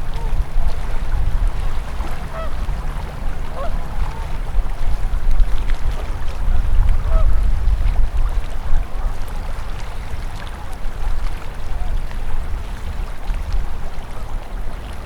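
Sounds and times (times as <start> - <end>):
waterfowl calls: 0.0 - 5.0, 6.0 - 7.4
river rushing: 0.0 - 15.0.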